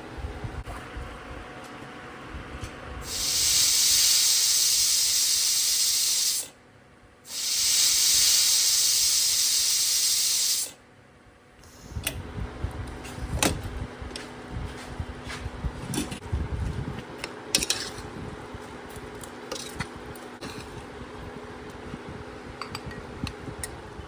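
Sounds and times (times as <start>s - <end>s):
loud steady hiss: 3.0s - 6.6s, 7.3s - 10.8s.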